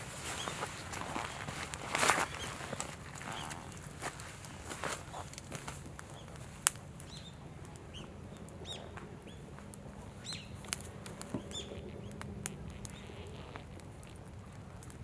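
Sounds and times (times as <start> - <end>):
campfire crackling and popping: 0.0 - 15.0
small bird chirping: 11.3 - 13.6.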